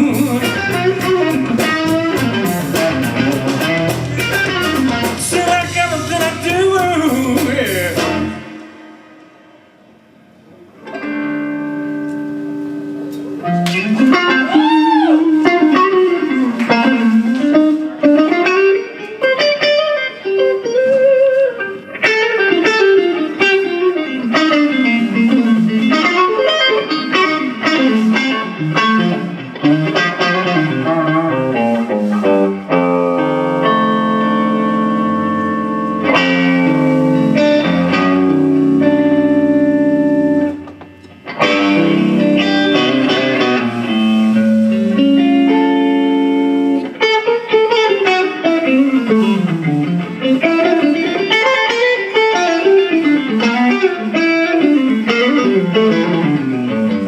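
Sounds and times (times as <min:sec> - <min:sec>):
bass and drums: 0:00.0 - 0:09.4
electric guitar bending notes: 0:00.0 - 0:57.0.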